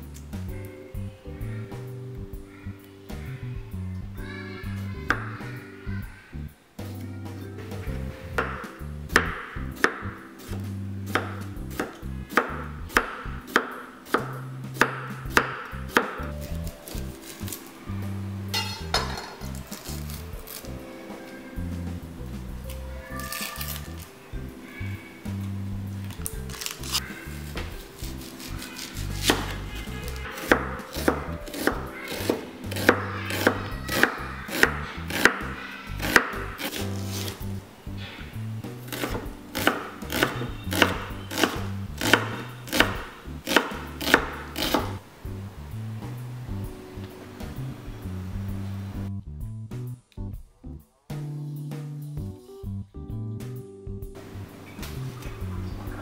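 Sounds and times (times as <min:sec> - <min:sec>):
quiet lounge music: 0:00.0 - 0:56.0
knife chopping cucumber on board: 0:26.6 - 0:37.4, 0:38.9 - 0:45.0.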